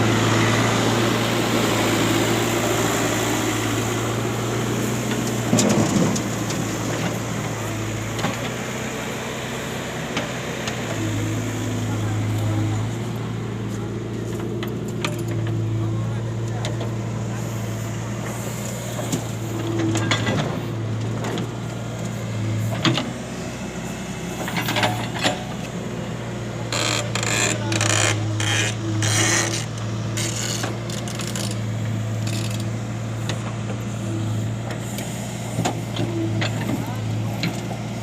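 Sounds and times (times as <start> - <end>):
vehicle engine running: 0.0 - 38.0.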